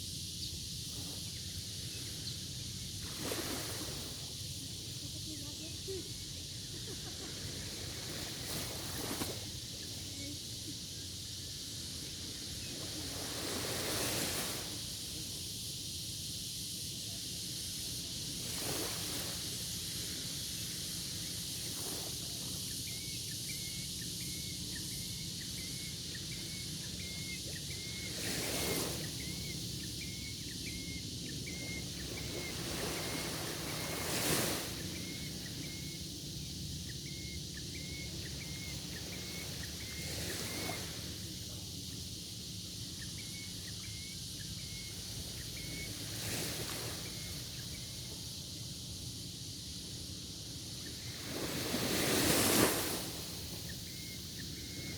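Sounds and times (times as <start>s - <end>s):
steady outdoor hiss: 0.0s - 54.9s
small waves washing onto shore: 0.9s - 15.5s, 17.8s - 22.8s, 25.6s - 36.4s, 38.2s - 41.5s, 44.9s - 48.3s, 50.2s - 54.9s
faint high chirp: 22.8s - 34.0s, 36.9s - 40.9s, 43.0s - 46.0s.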